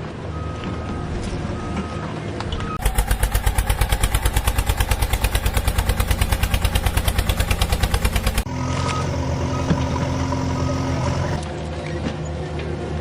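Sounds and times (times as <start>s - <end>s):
vehicle engine chugging: 2.8s - 11.4s.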